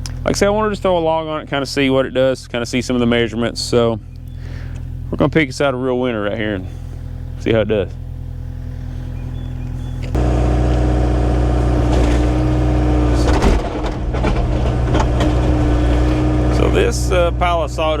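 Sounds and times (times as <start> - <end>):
engine running: 0.0 - 18.0
loud engine: 6.6 - 18.0
short clanks: 9.2 - 16.7.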